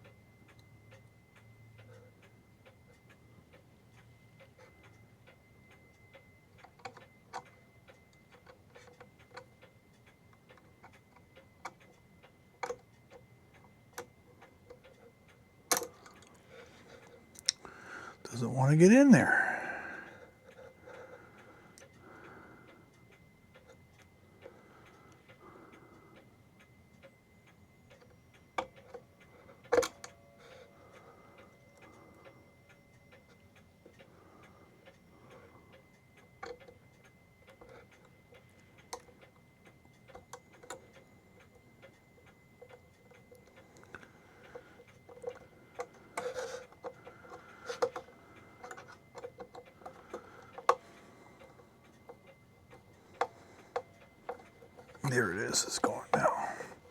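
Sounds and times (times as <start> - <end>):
small clicks and knocks of screwing: 3.0 - 17.7, 23.5 - 25.4, 27.0 - 32.2, 34.8 - 55.0.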